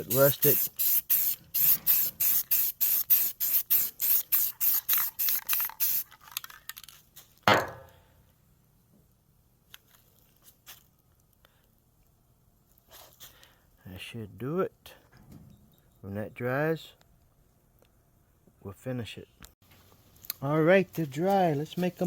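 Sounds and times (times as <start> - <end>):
spray paint can bursts: 0.0 - 6.2.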